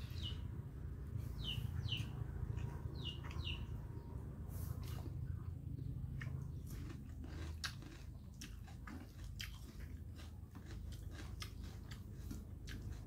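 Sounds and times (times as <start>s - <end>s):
low steady hum: 0.0s - 13.0s
chewing and biting: 4.8s - 13.0s.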